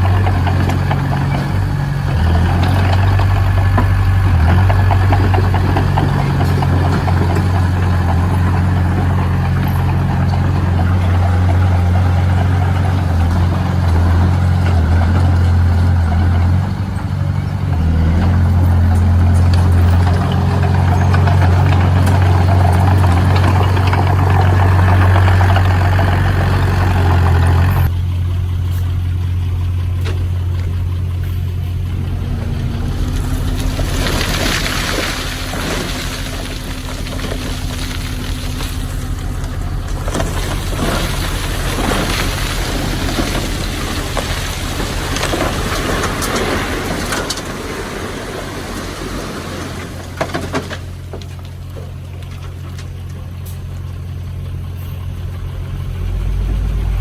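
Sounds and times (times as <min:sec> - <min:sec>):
construction machine engine droning: 0:00.0 - 0:57.0.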